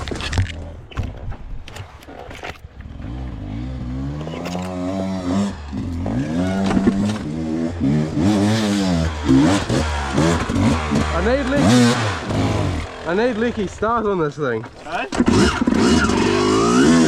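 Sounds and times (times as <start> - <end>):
dirt bike engine revving: 2.8 - 14.2, 15.0 - 17.0.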